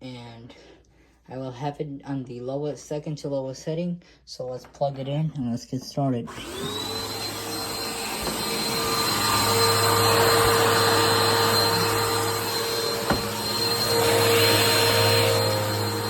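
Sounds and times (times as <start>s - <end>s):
upright vacuum motor whining: 6.3s - 16.0s.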